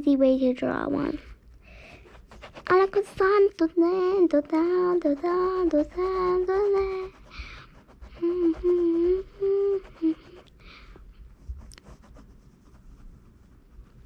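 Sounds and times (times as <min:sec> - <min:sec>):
girl breathing: 0:01.2 - 0:02.3, 0:07.1 - 0:11.2
girl humming: 0:03.9 - 0:07.4, 0:08.2 - 0:10.5.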